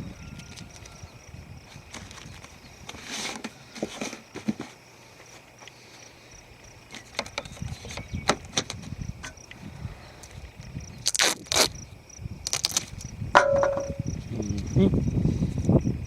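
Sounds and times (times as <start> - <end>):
duct tape tearing: 11.0 - 11.8, 12.4 - 12.9.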